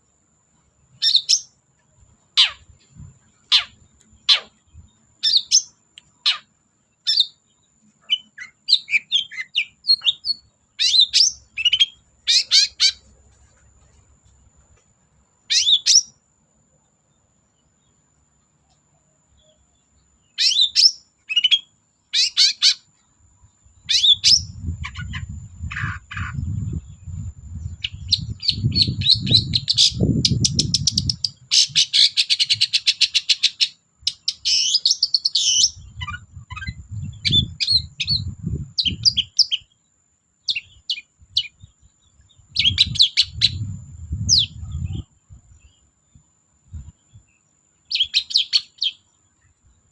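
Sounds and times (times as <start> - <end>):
bird harsh calls and chatter: 23.9 - 39.8.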